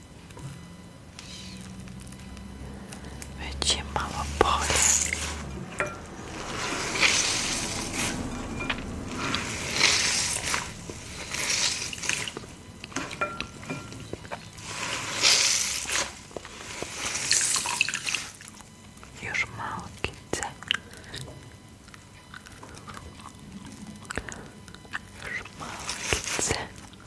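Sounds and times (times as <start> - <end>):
liquid swishing and squelching: 4.0 - 18.7.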